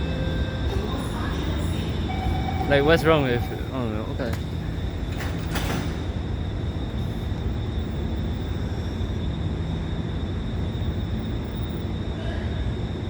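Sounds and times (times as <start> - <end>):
high-pitched whine: 0.0 - 13.0
train rumbling: 0.0 - 13.0.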